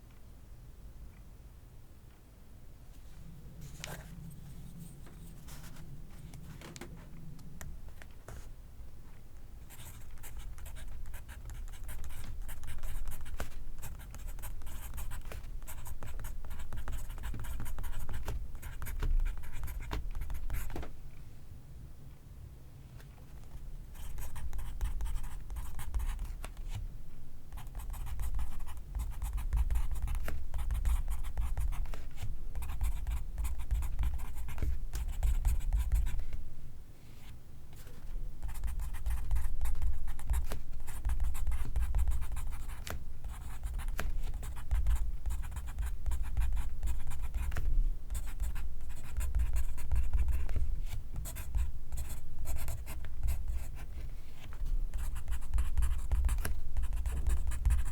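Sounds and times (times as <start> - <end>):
pencil writing on paper: 9.7 - 20.7, 27.6 - 32.0, 32.6 - 36.2, 38.4 - 50.6, 51.2 - 53.9, 54.9 - 57.9.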